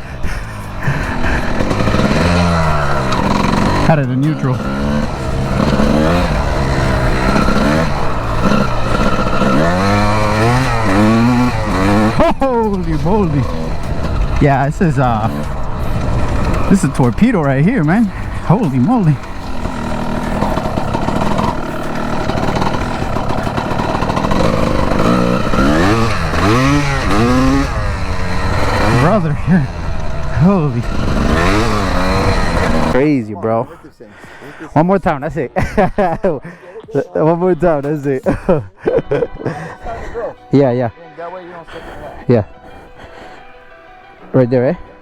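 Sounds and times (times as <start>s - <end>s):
dirt bike engine revving: 0.0s - 36.6s.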